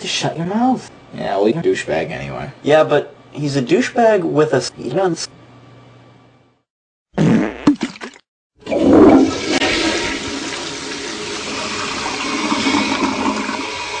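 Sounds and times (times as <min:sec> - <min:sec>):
toilet flushing: 0:08.6 - 0:14.0.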